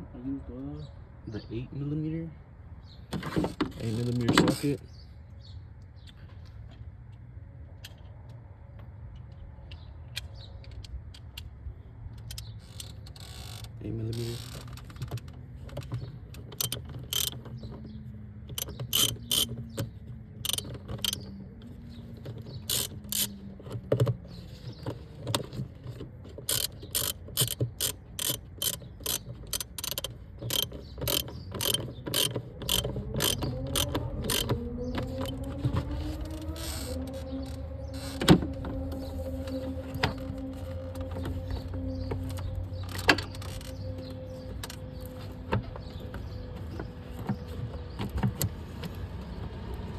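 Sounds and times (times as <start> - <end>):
hand ratchet clicking: 16.6 - 17.4, 18.6 - 19.5, 20.4 - 21.2, 22.6 - 23.4, 26.5 - 35.4
rising whine: 33.0 - 46.6.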